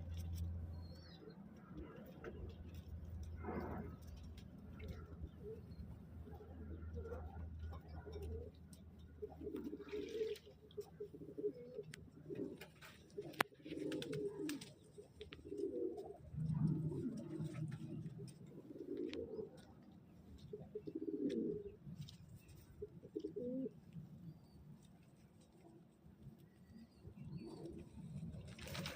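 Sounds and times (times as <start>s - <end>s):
pigeons cooing: 4.8s - 21.8s, 22.5s - 24.6s.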